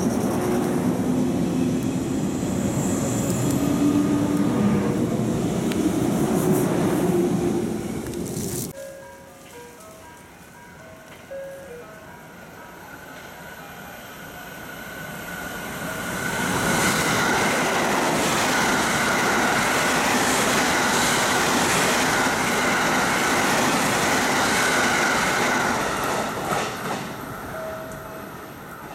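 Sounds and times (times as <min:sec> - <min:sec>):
train wheel and rail noise: 0:00.0 - 0:28.9.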